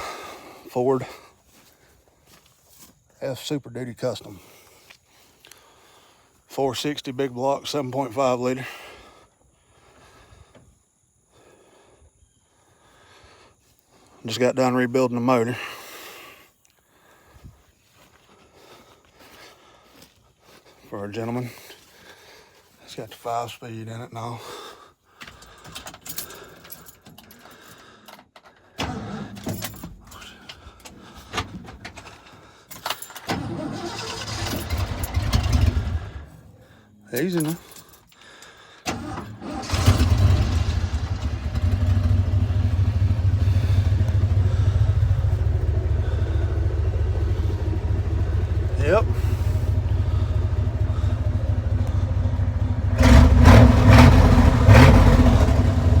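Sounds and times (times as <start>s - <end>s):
keys jangling: 25.4s - 28.6s, 29.4s - 30.6s, 32.0s - 33.3s, 37.2s - 38.2s
engine starter cranking: 26.9s - 36.4s, 38.8s - 56.0s.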